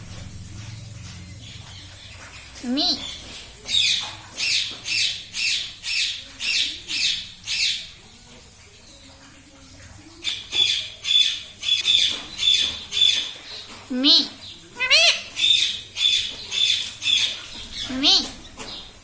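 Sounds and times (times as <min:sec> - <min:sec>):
parrot squawking: 0:14.2 - 0:18.4.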